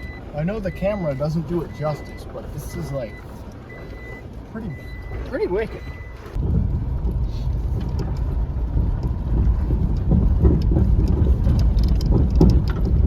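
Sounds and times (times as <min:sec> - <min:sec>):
truck engine low rumble: 0:00.0 - 0:13.0
tyres crunching: 0:00.0 - 0:13.0
clicks and knocks of rock: 0:06.4 - 0:13.0.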